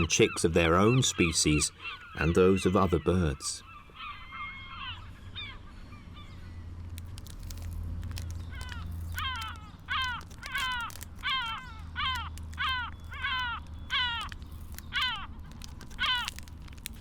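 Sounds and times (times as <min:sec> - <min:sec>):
gull calling: 0:00.0 - 0:06.4, 0:07.2 - 0:17.0
low steady rumble: 0:03.6 - 0:17.0.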